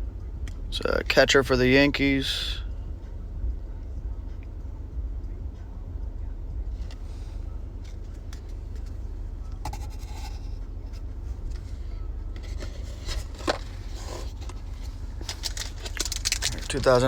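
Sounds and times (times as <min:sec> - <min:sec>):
car interior rumble: 0:00.0 - 0:17.0
cards and wrappers rustling: 0:12.4 - 0:17.0
wrapper crinkling: 0:12.4 - 0:17.0.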